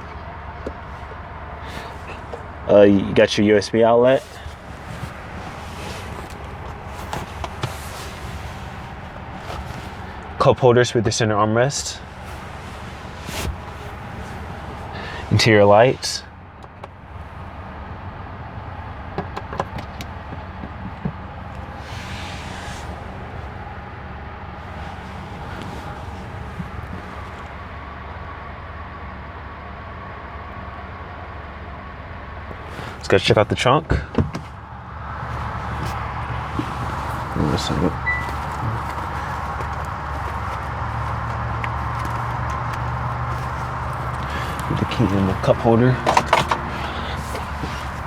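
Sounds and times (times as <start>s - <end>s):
low hum inside car cabin: 0.0s - 48.0s
interior trim clicks: 4.3s - 10.4s, 19.0s - 23.6s, 34.0s - 48.0s
fan-like hiss: 21.6s - 23.7s.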